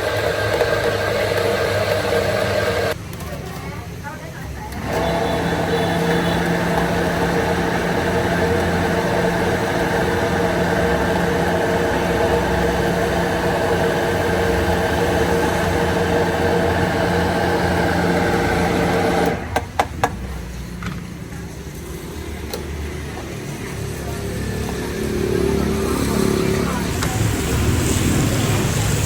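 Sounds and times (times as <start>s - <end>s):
blender motor running: 0.0s - 3.0s, 4.7s - 19.6s.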